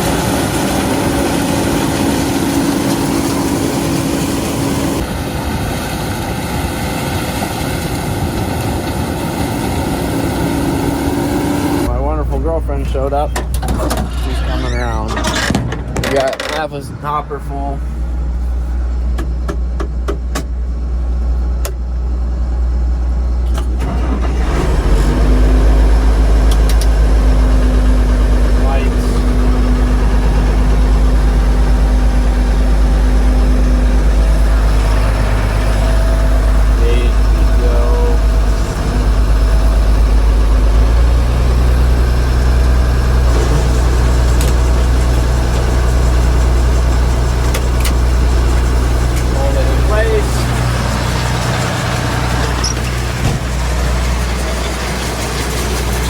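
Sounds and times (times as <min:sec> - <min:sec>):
heavy engine droning: 0:00.0 - 0:56.0
steady hum: 0:27.2 - 0:53.6.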